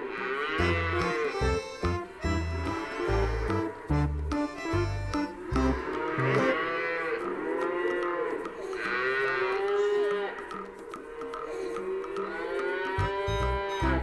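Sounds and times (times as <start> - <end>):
cattle mooing: 0.0 - 14.0
guitar music: 0.6 - 6.6, 13.0 - 14.0.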